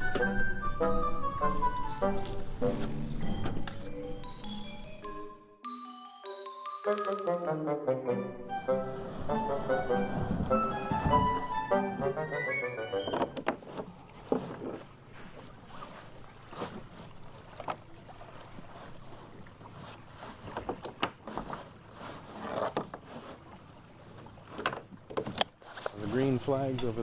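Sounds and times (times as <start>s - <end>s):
kayak and paddles knocking: 0.0s - 5.2s, 8.5s - 27.0s.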